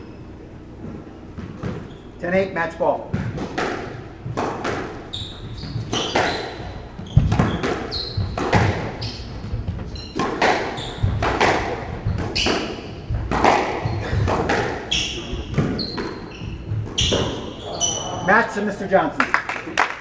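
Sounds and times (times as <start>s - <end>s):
shoes squeaking on court floor: 0.0s - 18.6s
squash ball smacking: 3.1s - 17.6s.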